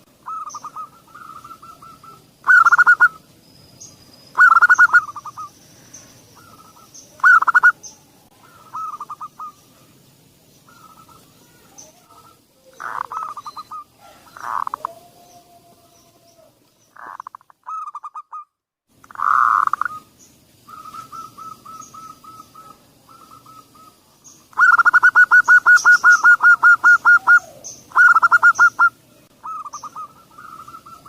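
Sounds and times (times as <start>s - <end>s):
small birds chirping: 0.0s - 31.0s
dove rapid cooing: 0.2s - 3.2s, 8.4s - 9.9s, 12.1s - 15.2s, 20.7s - 31.0s.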